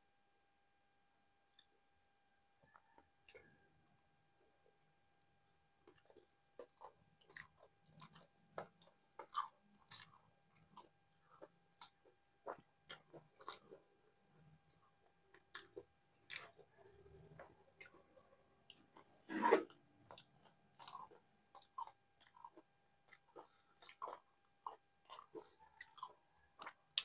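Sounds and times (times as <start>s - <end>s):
man chewing with wet smacks: 5.8s - 27.0s.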